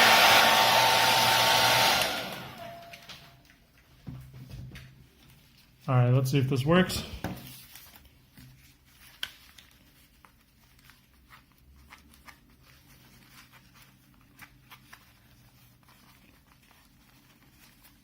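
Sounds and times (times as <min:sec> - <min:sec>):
faint rubbing of ear pad: 0:07.4 - 0:18.0.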